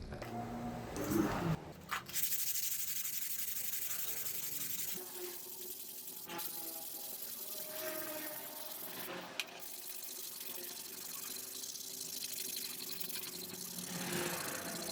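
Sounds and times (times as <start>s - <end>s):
water running from a tap: 3.0s - 14.9s.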